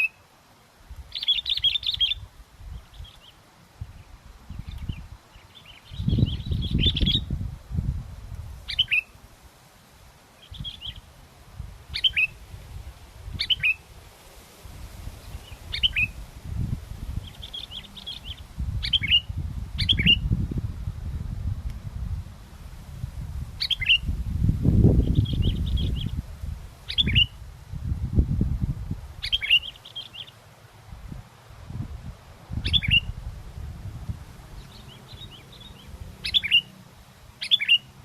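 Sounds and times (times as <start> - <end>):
bulbul calling: 0.0 - 0.2, 1.1 - 3.4, 4.5 - 7.3, 8.7 - 9.2, 10.4 - 11.1, 11.9 - 12.4, 13.3 - 13.8, 15.2 - 16.2, 17.2 - 20.3, 23.6 - 24.2, 25.0 - 26.2, 26.9 - 27.4, 29.2 - 30.4, 32.6 - 33.2, 34.5 - 36.8, 37.4 - 38.0
wind buffeting microphone: 0.8 - 9.0, 10.5 - 29.8, 30.9 - 36.7.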